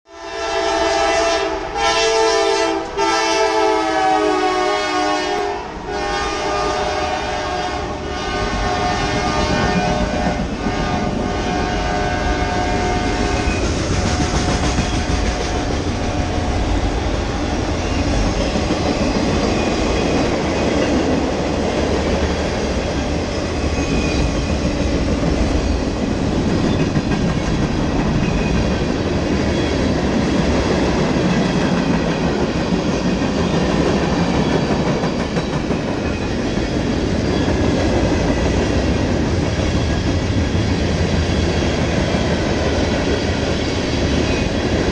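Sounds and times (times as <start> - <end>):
train air horn: 0.1 - 16.5
train engines and wheels rumbling: 0.1 - 44.9.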